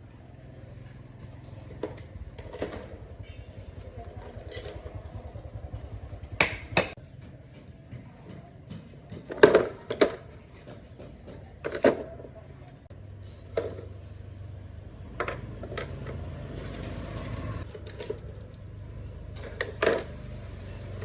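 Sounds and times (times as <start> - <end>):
tools knocking and clanking: 1.1 - 3.4, 6.4 - 12.4.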